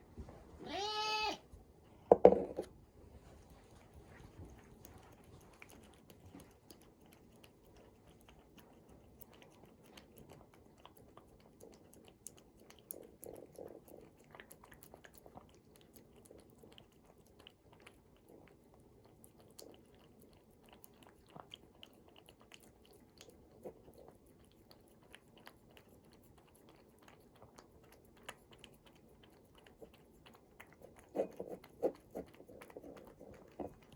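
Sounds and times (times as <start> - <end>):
cat meowing: 0.6 - 1.4
chewing and crunching: 3.1 - 33.9.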